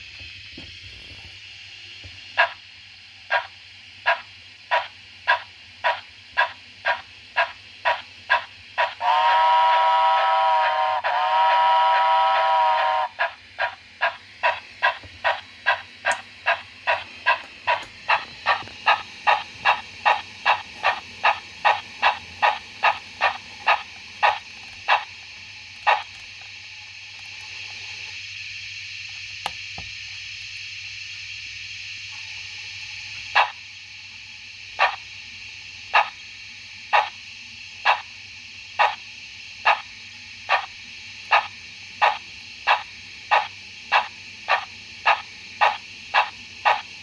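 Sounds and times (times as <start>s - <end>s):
steam engine chuffs from loudspeaker: 3.3s - 26.2s, 34.8s - 35.0s, 35.9s - 36.2s, 36.9s - 37.2s, 37.8s - 38.1s, 39.6s - 39.9s, 40.5s - 47.0s.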